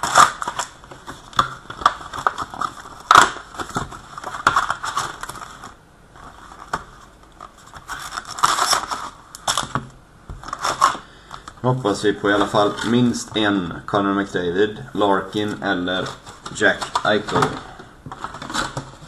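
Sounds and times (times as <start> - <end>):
plastic wrapping crinkling: 0.0 - 13.4, 15.3 - 19.0.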